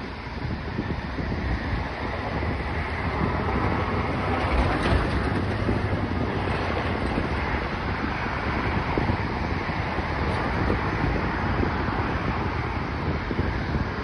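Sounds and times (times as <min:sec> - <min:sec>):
jet airliner rumble: 0:00.0 - 0:14.0
wind buffeting microphone: 0:00.0 - 0:14.0.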